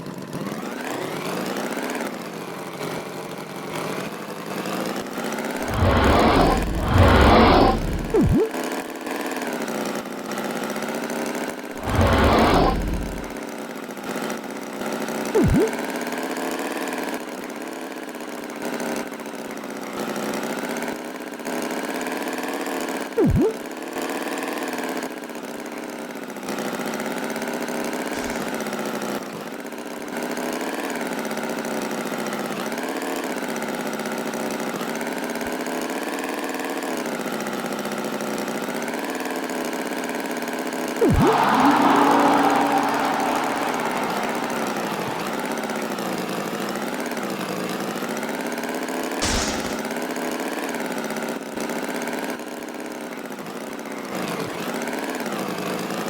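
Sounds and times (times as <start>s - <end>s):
brief loud sounds: 11.8s - 13.3s, 41.0s - 45.9s, 49.2s - 50.0s.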